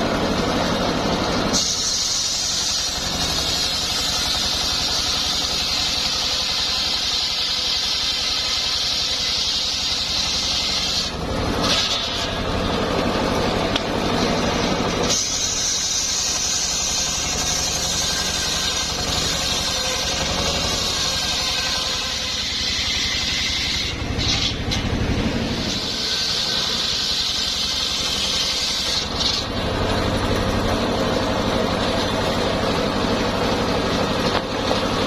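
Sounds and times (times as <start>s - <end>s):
saw blade whine: 0.0s - 35.0s
sawmill engine pulsing: 0.0s - 35.0s.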